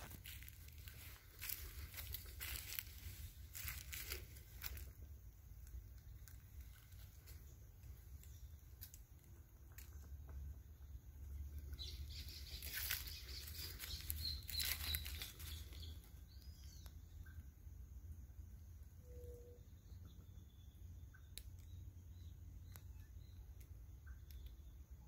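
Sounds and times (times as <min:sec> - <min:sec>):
birds fluttering and rustling: 0:00.0 - 0:10.4, 0:11.2 - 0:16.3
high bird chirps: 0:11.6 - 0:17.4.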